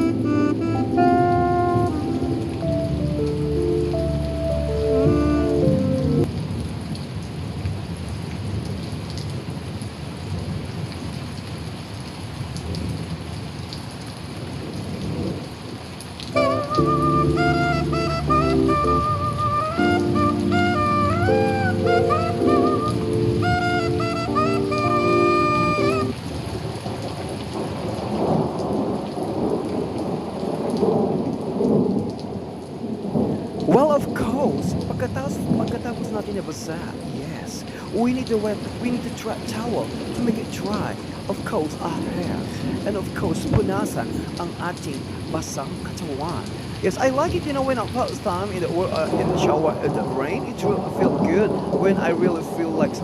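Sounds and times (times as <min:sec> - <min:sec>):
rain splashing on surfaces: 0:00.0 - 0:53.0
rolling rumble of thunder: 0:14.4 - 0:15.6, 0:25.6 - 0:36.0, 0:48.6 - 0:53.0.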